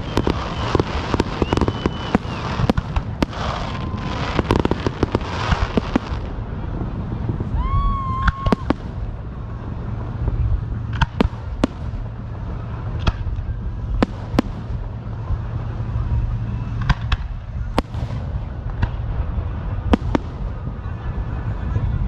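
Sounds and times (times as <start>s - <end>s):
firework whistle: 0.0s - 6.3s, 7.4s - 9.1s
fireworks bangs: 0.0s - 21.8s
fireworks crackling and popping: 0.0s - 22.0s
low rumble: 0.0s - 22.0s.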